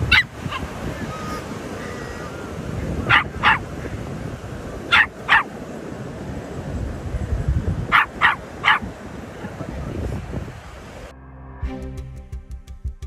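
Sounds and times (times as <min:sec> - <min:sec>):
animal barking: 0:00.0 - 0:03.8, 0:04.8 - 0:05.6, 0:07.9 - 0:09.0.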